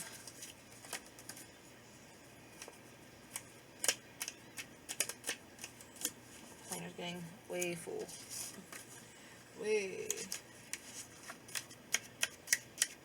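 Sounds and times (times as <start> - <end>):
paper stickers clicking and snipping: 0.2 - 1.5, 2.6 - 6.2, 10.0 - 13.0.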